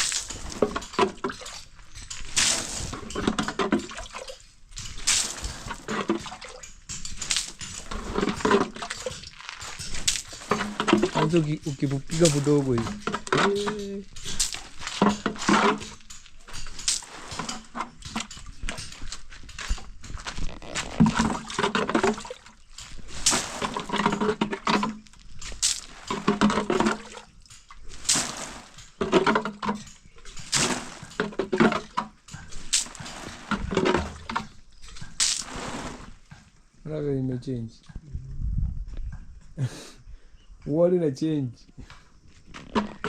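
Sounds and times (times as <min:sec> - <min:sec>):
water splashing onto cement: 0:00.0 - 0:18.3, 0:20.2 - 0:29.4, 0:30.3 - 0:32.0, 0:32.6 - 0:36.2.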